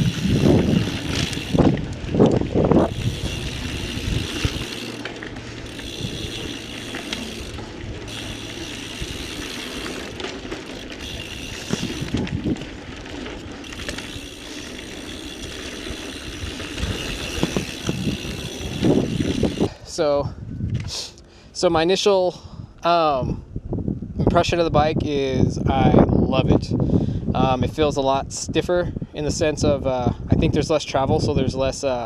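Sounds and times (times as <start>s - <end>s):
chain and frame rattling: 0.0s - 19.8s
freewheel hub buzzing: 0.0s - 19.8s
bike tyres rumbling on dirt: 0.0s - 20.4s.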